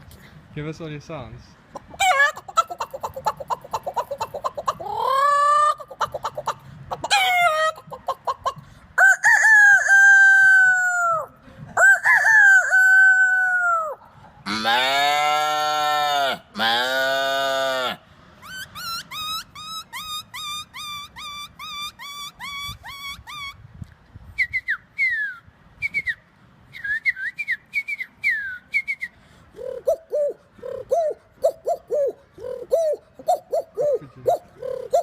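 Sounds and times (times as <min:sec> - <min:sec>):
man cooing like pigeon: 0:01.9 - 0:08.2, 0:09.3 - 0:18.0, 0:29.5 - 0:35.0
man imitating cow moo: 0:14.5 - 0:18.0.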